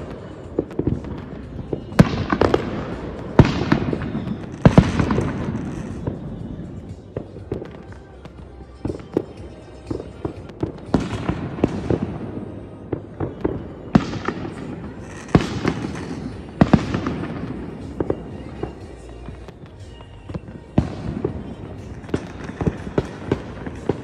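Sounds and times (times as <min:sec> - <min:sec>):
fireworks bangs and crackles: 0:00.0 - 0:24.0
loud fireworks booms: 0:00.0 - 0:24.0.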